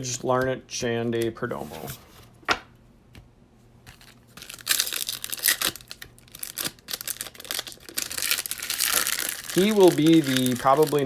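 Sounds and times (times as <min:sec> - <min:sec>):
card pack wrapper crinkling and tearing: 0:03.9 - 0:11.0.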